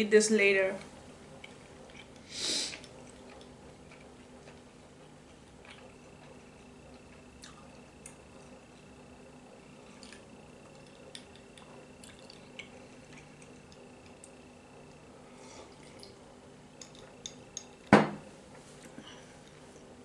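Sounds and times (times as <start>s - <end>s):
dish set down on table: 17.9s - 18.2s.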